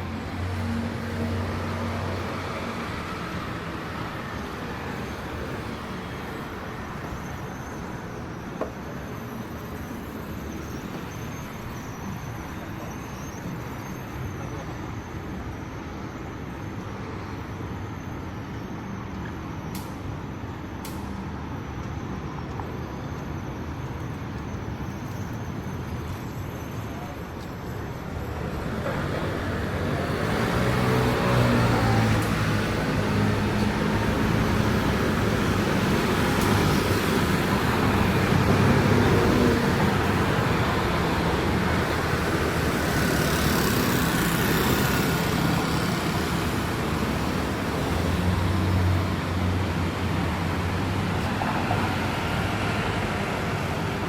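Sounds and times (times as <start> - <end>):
street traffic on wet pavement: 0.0 - 54.0
vehicle approaching: 26.3 - 54.0.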